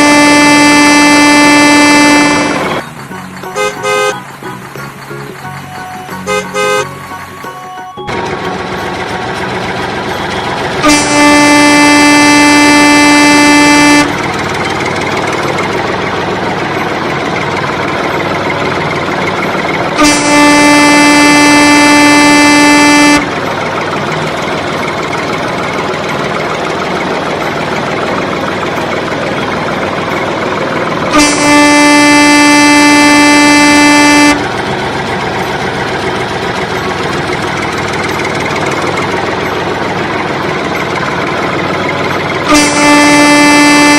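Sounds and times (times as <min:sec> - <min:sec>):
vehicle horn honking: 0:00.0 - 0:04.3, 0:05.6 - 0:08.2, 0:08.9 - 0:15.8, 0:20.0 - 0:23.9, 0:31.0 - 0:34.7, 0:42.4 - 0:43.9
vehicle rumble: 0:00.0 - 0:43.9.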